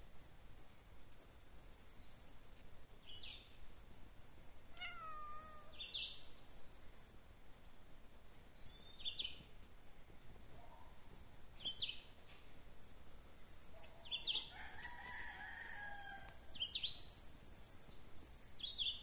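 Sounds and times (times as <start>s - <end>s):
birds chirping: 4.3s - 7.0s
high-pitched bird trill: 4.8s - 6.6s
lower falling bird call: 4.8s - 6.8s.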